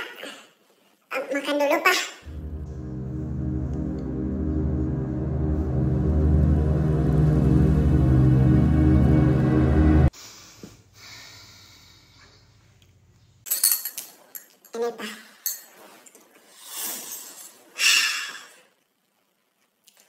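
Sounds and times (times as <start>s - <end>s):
background music: 2.3s - 10.1s
cutlery clinking on dishes: 15.4s - 15.9s.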